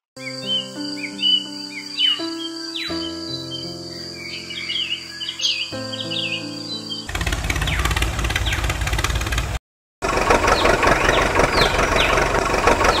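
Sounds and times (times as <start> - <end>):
birds chirping: 0.2 - 9.3, 10.2 - 13.0
diesel engine idling: 7.1 - 13.0.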